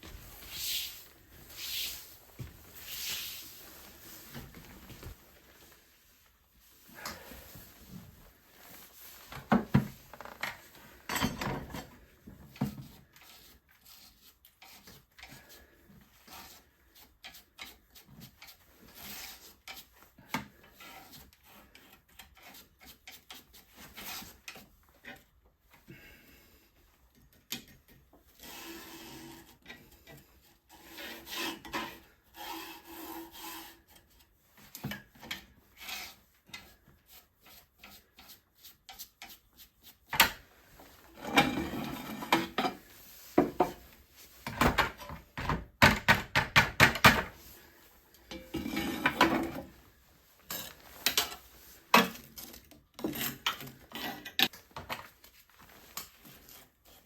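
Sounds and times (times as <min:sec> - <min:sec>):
wood scraping on wood: 0:28.4 - 0:44.5, 0:48.5 - 0:49.7.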